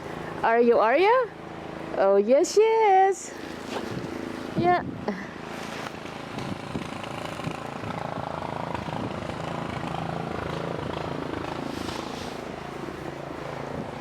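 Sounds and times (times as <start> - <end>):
snowblower engine running: 5.2 - 14.0.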